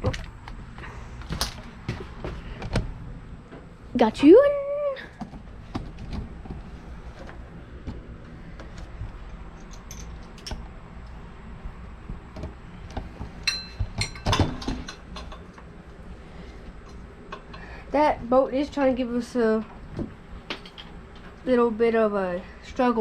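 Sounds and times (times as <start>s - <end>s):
ringing metal clink: 13.4s - 14.4s.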